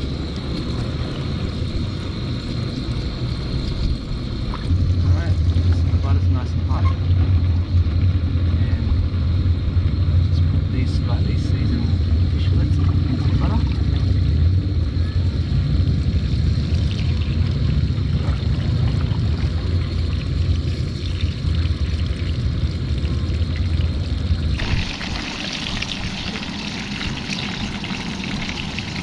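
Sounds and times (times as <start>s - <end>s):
low rumble: 0.0s - 29.0s
fish sizzling in a frying pan: 24.6s - 29.0s.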